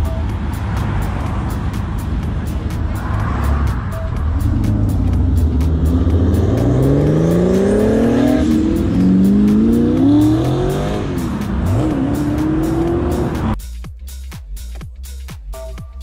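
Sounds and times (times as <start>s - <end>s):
car engine accelerating hard: 0.0s - 13.6s.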